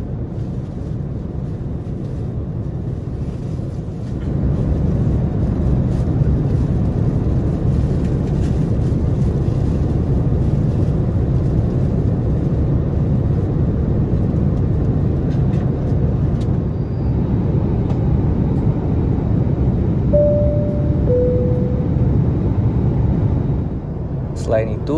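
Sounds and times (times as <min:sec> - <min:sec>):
airliner cabin noise: 0:00.0 - 0:24.9
tone stepping down in pitch: 0:20.2 - 0:22.3.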